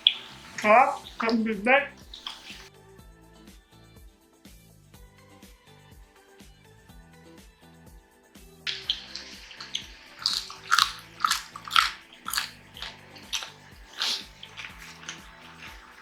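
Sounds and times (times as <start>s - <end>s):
crunchy chewing: 0.0s - 2.7s, 8.7s - 16.0s
background music: 0.0s - 16.0s.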